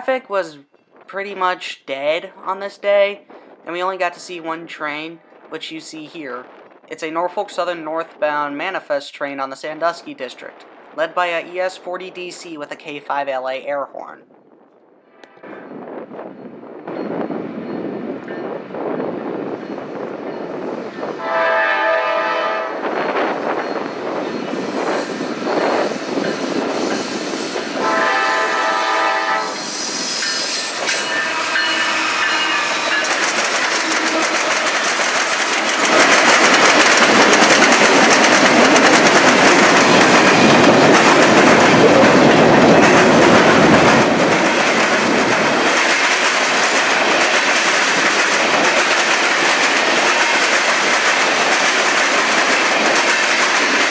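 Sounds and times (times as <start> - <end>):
freight train rolling past: 14.7 - 53.9
locomotive air horn blasts: 21.2 - 22.8, 27.8 - 29.6, 31.0 - 33.0
wheels clattering over rail joints: 30.9 - 53.9.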